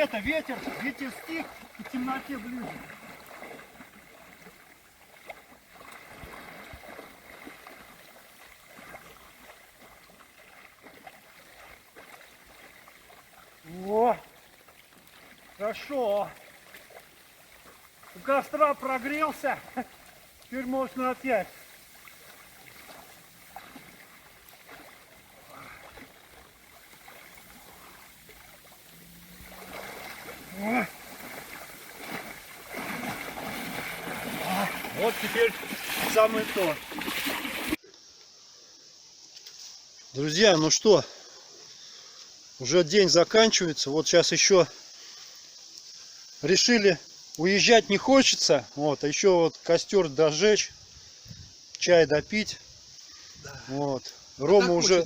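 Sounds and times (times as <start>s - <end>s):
water lapping and splashing: 0.0s - 37.8s.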